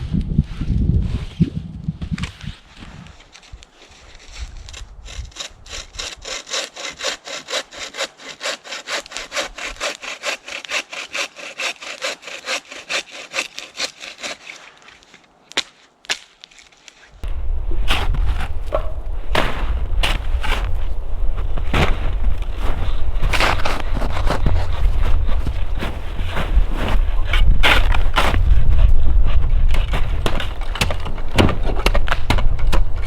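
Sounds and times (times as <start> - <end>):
hand saw cutting wood: 3.4 - 28.6
sharp knocks: 29.8 - 33.0.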